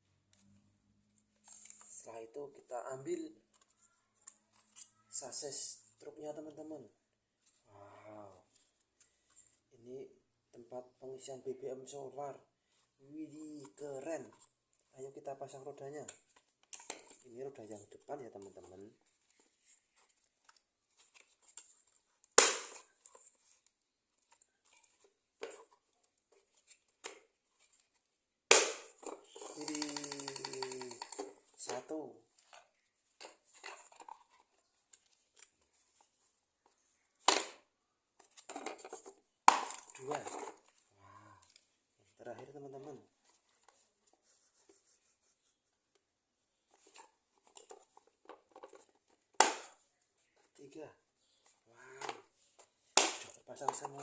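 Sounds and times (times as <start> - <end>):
faint rubbing of toy parts: 0.1 - 54.0
toy parts clicking and knocking: 28.6 - 34.4
plastic toy parts clicking: 29.0 - 31.4.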